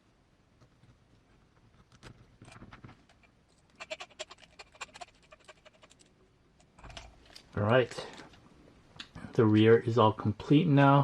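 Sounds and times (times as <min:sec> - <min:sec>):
rustle: 0:01.1 - 0:06.2.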